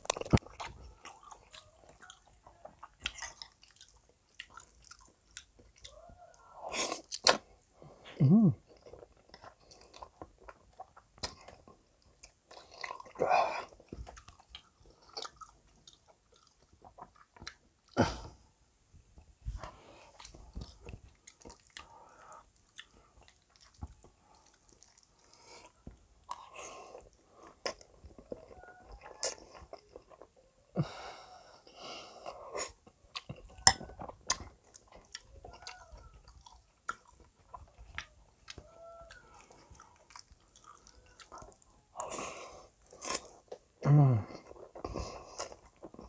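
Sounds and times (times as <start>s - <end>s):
chewing and slurping spaghetti: 0.0s - 6.0s, 8.6s - 18.0s, 19.5s - 30.4s, 31.6s - 46.0s
mouth sounds: 8.0s - 8.7s.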